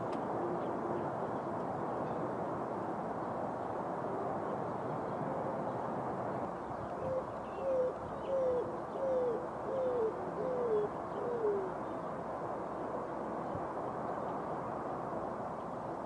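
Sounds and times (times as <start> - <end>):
city background: 0.0 - 16.0
wind: 0.0 - 16.0
bird cooing: 7.0 - 11.8.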